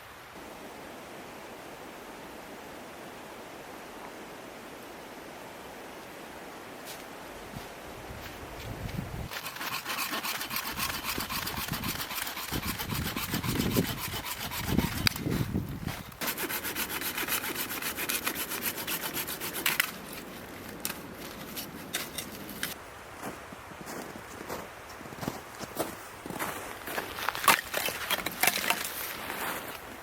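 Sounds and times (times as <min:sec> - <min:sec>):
hand saw cutting wood: 0:09.3 - 0:15.6, 0:16.2 - 0:20.2, 0:27.4 - 0:29.7.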